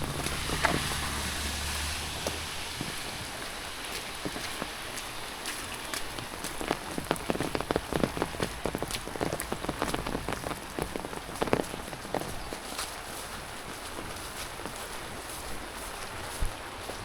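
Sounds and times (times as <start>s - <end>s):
rain falling: 0.0s - 17.0s
raindrops hitting close by: 0.0s - 17.0s.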